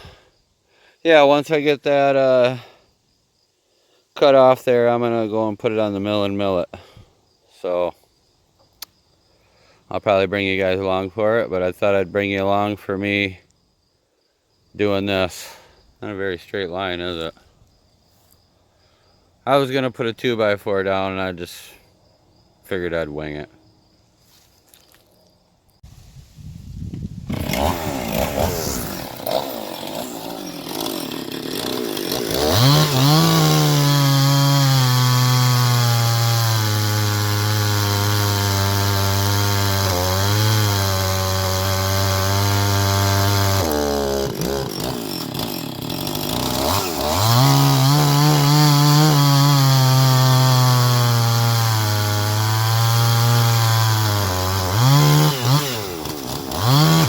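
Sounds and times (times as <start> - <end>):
chainsaw cutting log: 27.2 - 57.0.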